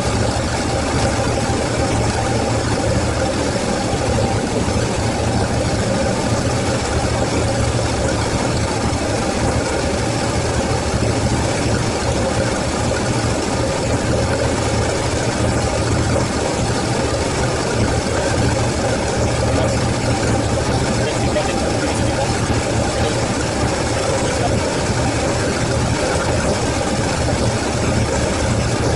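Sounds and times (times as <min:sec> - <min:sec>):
car engine idling: 0:00.0 - 0:28.9.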